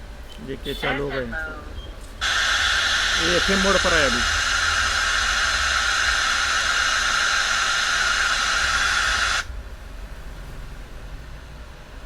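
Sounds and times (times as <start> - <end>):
radio static hiss: 2.2 - 9.5.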